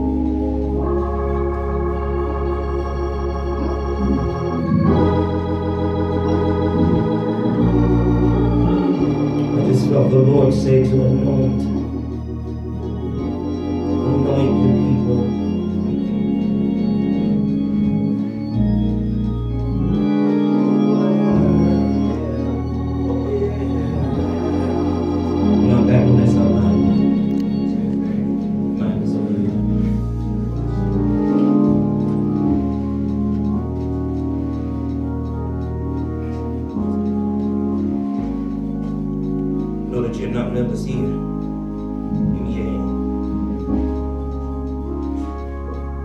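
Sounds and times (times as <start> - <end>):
organ playing sustained chords: 0.0 - 46.0
person preaching: 9.5 - 12.0, 14.0 - 15.7, 20.8 - 27.6, 28.8 - 29.8, 39.9 - 41.2.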